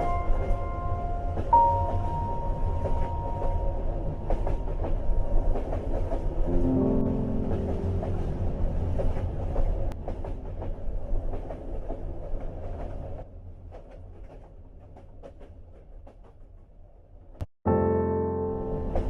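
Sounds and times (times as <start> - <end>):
wheels clicking over rail joints: 0.0 - 6.5
train rumbling on rails: 0.0 - 17.4, 18.4 - 19.0.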